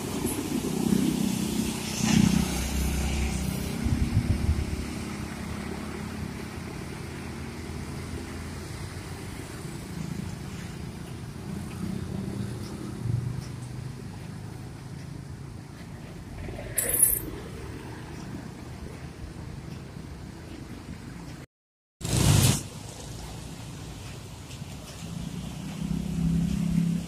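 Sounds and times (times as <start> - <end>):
passing road traffic: 0.0 - 27.0.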